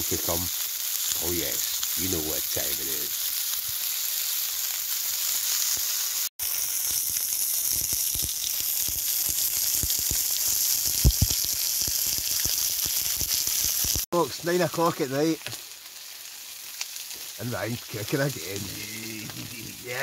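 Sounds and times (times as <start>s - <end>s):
burgers sizzling in a pan: 0.0s - 20.0s
fat popping: 10.8s - 11.9s.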